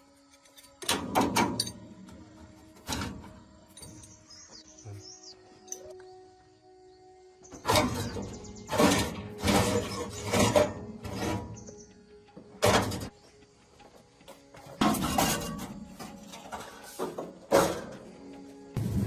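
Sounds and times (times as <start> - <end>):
metal tools clattering: 0.3 - 2.2, 2.8 - 4.2, 7.6 - 11.6, 14.8 - 18.0.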